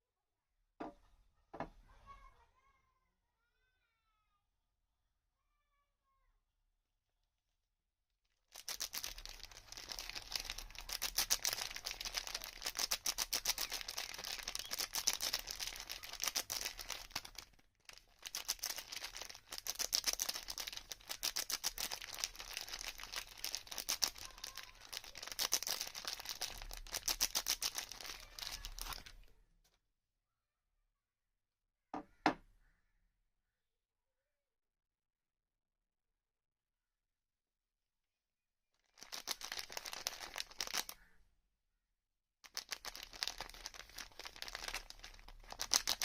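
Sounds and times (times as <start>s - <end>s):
wrapper crinkling and crackling: 8.5s - 29.3s, 38.9s - 41.0s, 42.4s - 46.0s.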